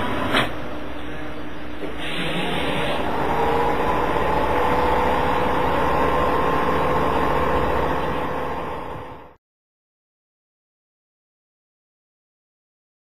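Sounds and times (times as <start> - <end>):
steady whine: 0.0 - 9.4
train mechanical hum: 0.0 - 9.4.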